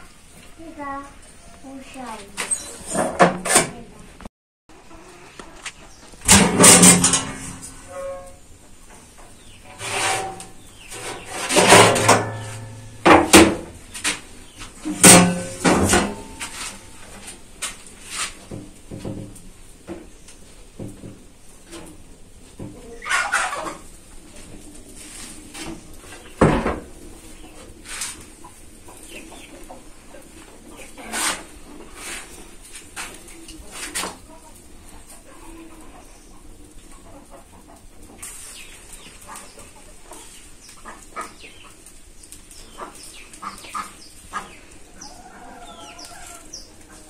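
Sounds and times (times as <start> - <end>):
metal tray scraping out of oven: 2.4 - 3.8, 6.2 - 8.4, 9.6 - 13.6
metal tray clanks: 6.2 - 8.3, 9.7 - 13.7, 14.9 - 16.5.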